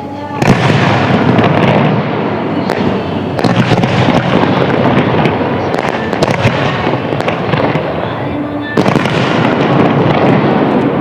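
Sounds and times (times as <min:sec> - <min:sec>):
fireworks booming: 0:00.0 - 0:11.0
fireworks cracks and pops: 0:02.7 - 0:11.0.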